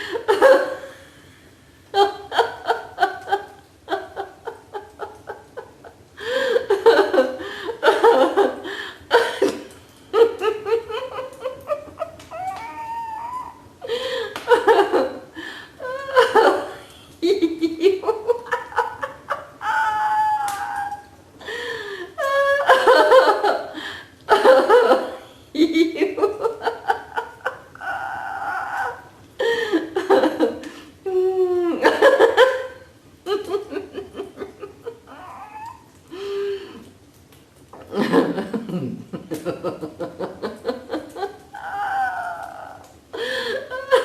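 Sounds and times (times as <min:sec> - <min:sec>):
people laughing heartily: 0:17.8 - 0:19.6.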